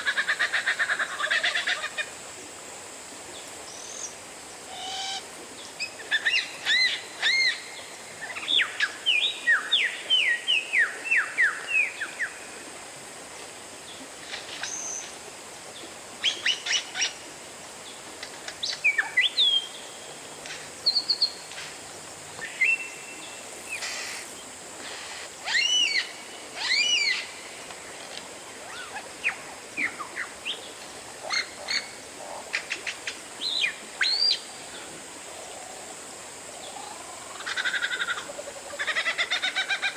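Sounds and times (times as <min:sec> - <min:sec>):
faint steady hiss: 0:00.0 - 0:39.9
bird singing whistled notes: 0:25.5 - 0:27.3.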